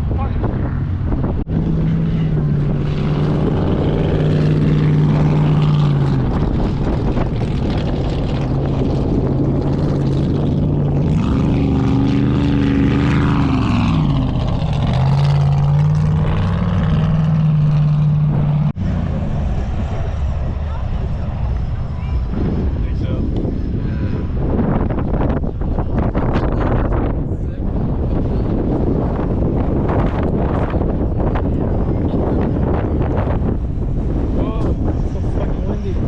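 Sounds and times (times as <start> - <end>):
engine droning at high revs: 0.5 - 27.1.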